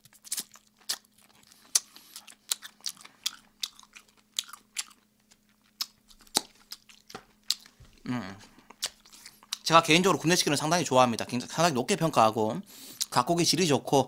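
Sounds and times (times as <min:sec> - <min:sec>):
open-mouth chewing: 0:00.0 - 0:07.8, 0:08.4 - 0:09.7
faint steady hum: 0:00.0 - 0:14.0
wet lip-smacking clicks: 0:08.8 - 0:09.6.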